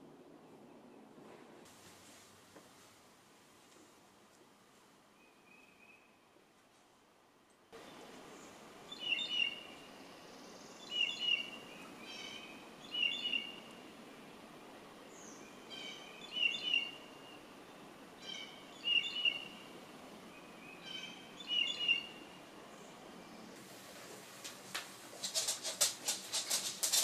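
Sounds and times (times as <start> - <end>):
steady outdoor hiss: 0.0 - 27.0
songbird singing: 5.2 - 6.4, 7.5 - 23.6.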